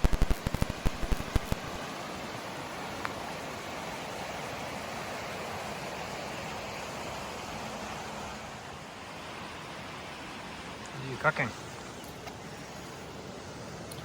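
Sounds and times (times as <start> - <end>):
steady rushing noise: 0.0 - 13.8.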